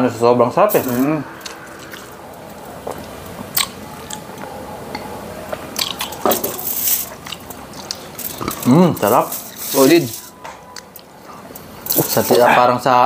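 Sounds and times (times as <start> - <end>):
people chewing food: 1.2 - 12.8
wet mouth clicks and smacks: 2.9 - 6.5, 7.1 - 8.1.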